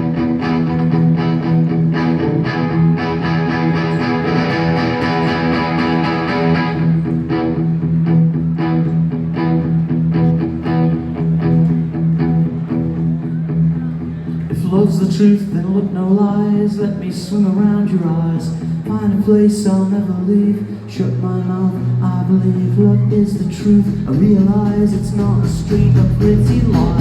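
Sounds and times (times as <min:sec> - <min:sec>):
guitars: 0:00.0 - 0:27.0
steady drum beat: 0:23.5 - 0:27.0.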